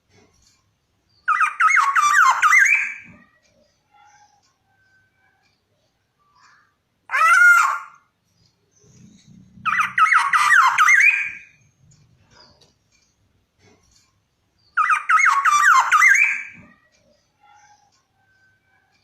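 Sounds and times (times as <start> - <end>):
oriole calling: 1.3 - 3.2, 7.1 - 8.1, 9.6 - 11.6, 14.8 - 16.8.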